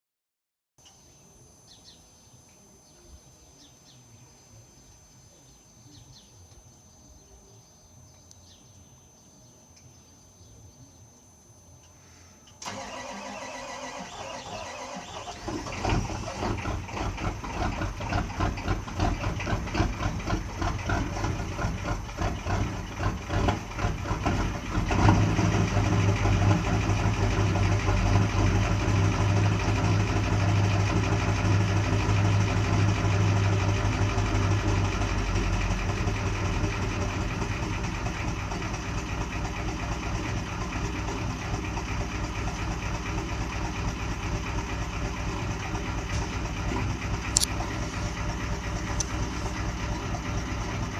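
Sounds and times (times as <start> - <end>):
diesel engine cranking and idling: 12.6 - 50.9.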